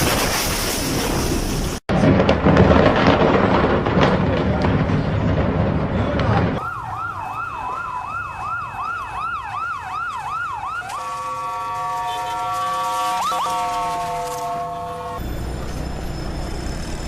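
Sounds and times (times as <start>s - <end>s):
siren yelping: 6.6s - 17.0s
multi-tone horn blast: 11.0s - 15.5s.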